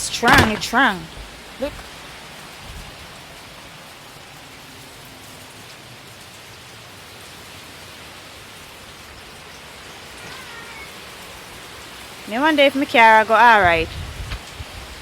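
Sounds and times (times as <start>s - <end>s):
strong wind: 0.0s - 3.2s, 13.5s - 15.0s
heavy rain hissing: 0.0s - 15.0s.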